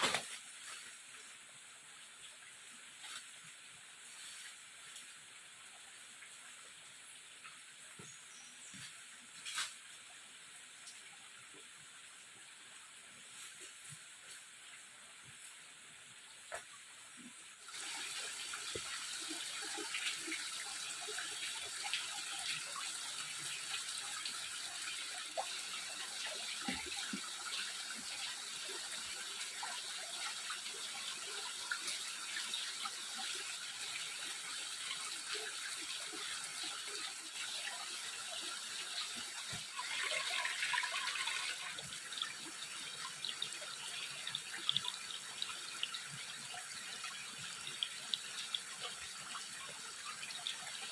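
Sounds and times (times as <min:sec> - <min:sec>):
water running and splashing: 0:17.6 - 0:50.9.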